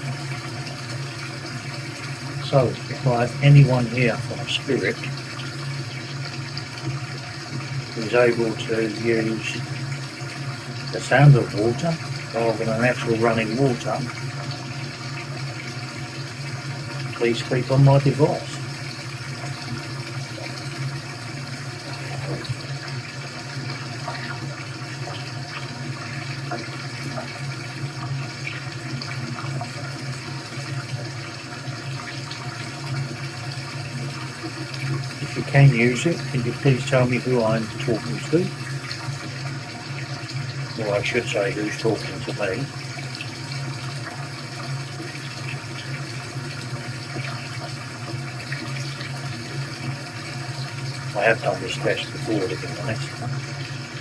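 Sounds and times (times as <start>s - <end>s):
running water through speakers: 0.0s - 54.0s.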